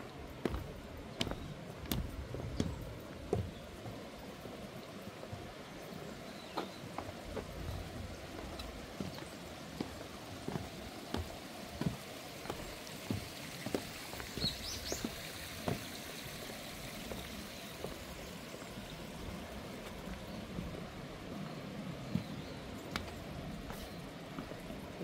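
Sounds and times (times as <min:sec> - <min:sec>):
footsteps walking: 0:00.0 - 0:04.6, 0:06.6 - 0:21.0, 0:22.1 - 0:25.0
running water rushing: 0:00.0 - 0:25.0
steady background hiss: 0:00.0 - 0:25.0
bird chirping: 0:14.3 - 0:16.0.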